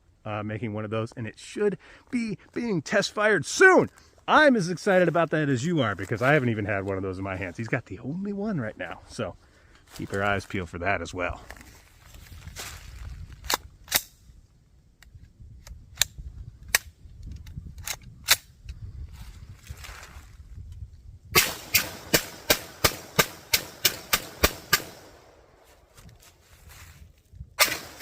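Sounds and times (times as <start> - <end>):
pistol gunshots: 21.4 - 25.3.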